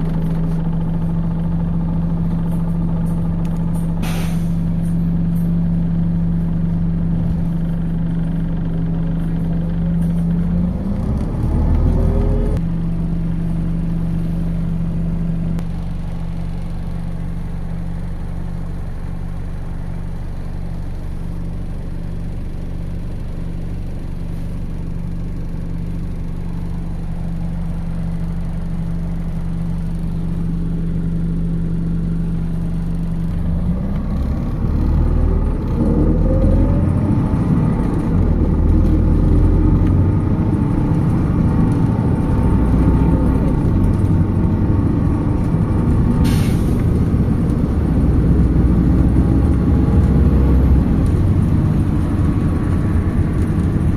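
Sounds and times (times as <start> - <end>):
bus diesel engine: 0.0 - 53.9
air hiss: 4.0 - 4.6.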